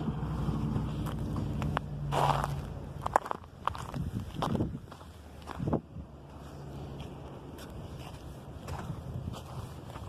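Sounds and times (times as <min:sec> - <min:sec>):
wind buffeting microphone: 0:03.2 - 0:10.0.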